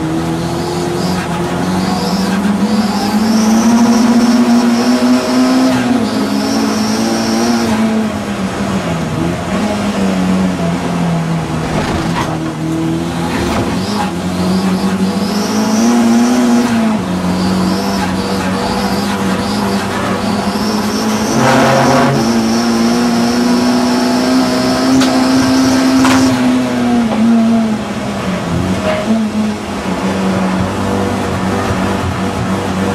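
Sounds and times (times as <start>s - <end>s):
race car engine running hard: 0.0s - 32.9s
high steady squeal: 17.2s - 23.9s.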